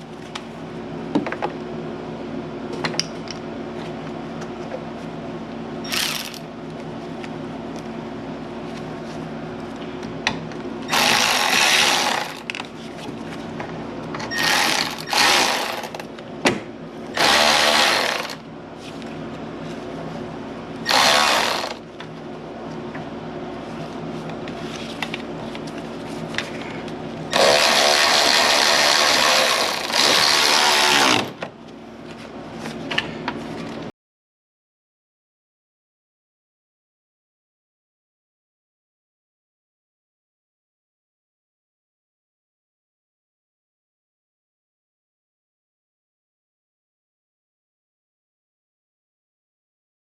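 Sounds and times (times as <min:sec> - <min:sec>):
steady low hum: 0:00.0 - 0:33.9
power tool running: 0:05.9 - 0:06.5, 0:10.9 - 0:12.5, 0:14.3 - 0:16.1, 0:17.1 - 0:18.4, 0:20.8 - 0:21.8, 0:27.3 - 0:31.4.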